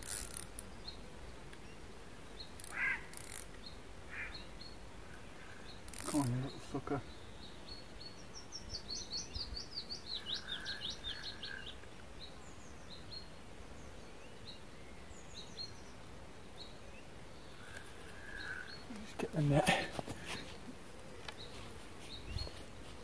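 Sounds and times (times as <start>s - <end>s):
faint background hiss: 0.0s - 23.0s
songbird singing: 0.0s - 23.0s
bird chirps: 7.0s - 13.3s.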